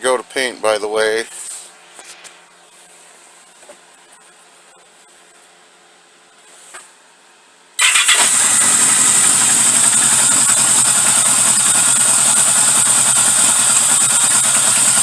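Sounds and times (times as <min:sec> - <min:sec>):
motorcycle engine starting and idling: 0:07.8 - 0:15.0.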